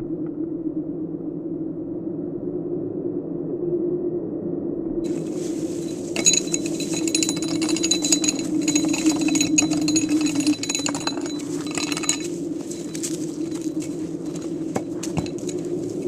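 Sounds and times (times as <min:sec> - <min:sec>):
beans rattling in grinder: 0:05.1 - 0:16.0.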